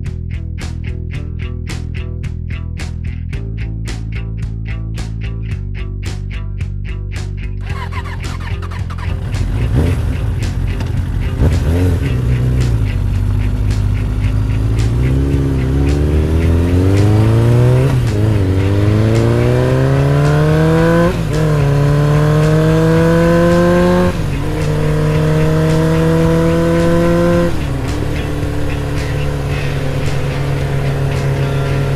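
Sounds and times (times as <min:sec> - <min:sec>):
motorcycle engine accelerating: 0:07.6 - 0:31.9.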